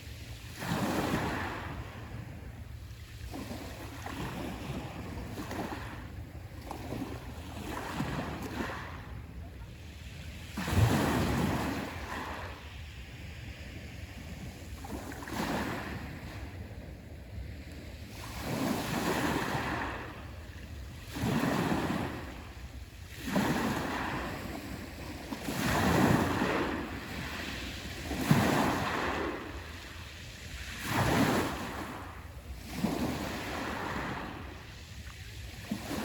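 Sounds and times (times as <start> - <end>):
waves breaking on shore: 0.0 - 36.0.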